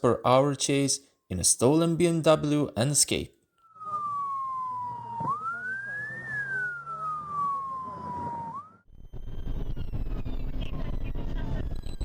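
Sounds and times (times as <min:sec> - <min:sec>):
police siren wailing: 0:03.6 - 0:12.0.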